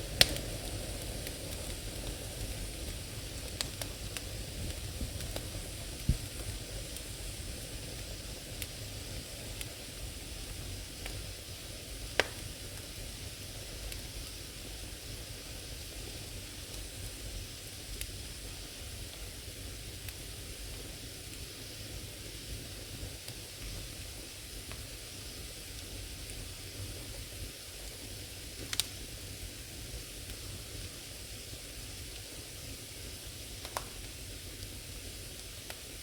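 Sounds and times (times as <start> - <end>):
firewood crackling and popping: 0.0 - 22.6, 23.2 - 31.0, 31.6 - 36.0
fire hissing: 0.0 - 36.0.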